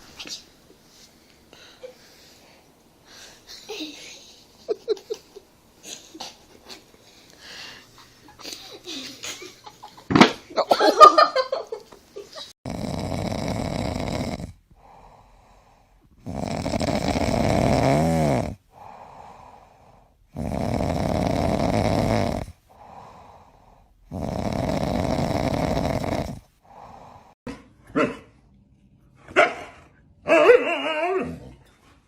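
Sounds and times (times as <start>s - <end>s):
pet snoring: 12.6s - 15.0s, 16.2s - 19.0s, 20.3s - 22.9s, 24.1s - 27.2s.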